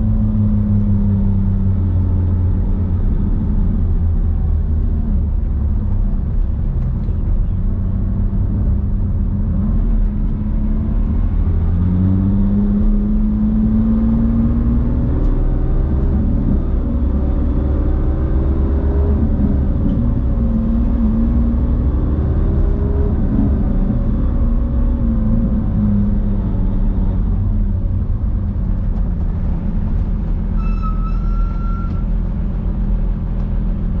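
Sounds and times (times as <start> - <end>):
car engine accelerating: 0.0 - 34.0
short high beep: 30.6 - 32.1.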